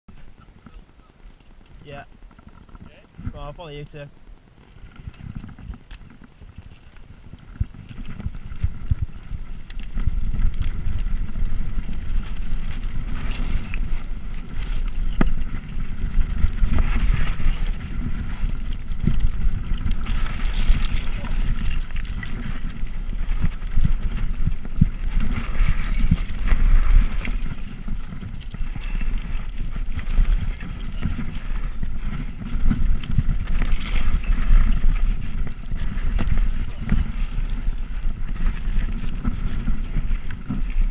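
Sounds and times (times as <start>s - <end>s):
bicycle tyre noise: 0.1s - 40.9s
wind on microphone: 0.1s - 40.9s.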